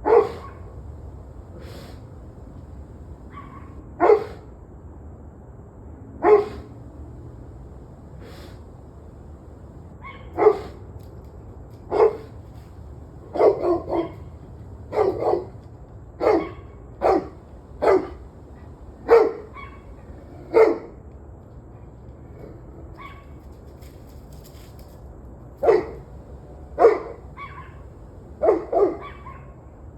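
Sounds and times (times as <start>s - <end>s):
dog barking: 0.0s - 0.8s, 3.2s - 4.5s, 6.2s - 6.8s, 10.0s - 10.8s, 11.9s - 12.3s, 13.2s - 15.6s, 16.2s - 20.9s, 25.6s - 29.6s
steady low hum: 0.0s - 3.8s, 6.4s - 10.9s, 11.7s - 20.6s, 25.5s - 29.0s.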